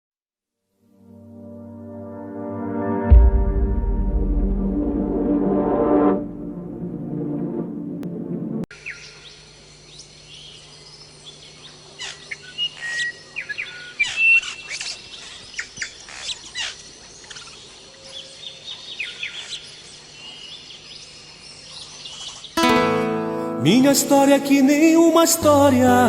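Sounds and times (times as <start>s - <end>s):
birds chirping and whistling: 12.0s - 19.6s.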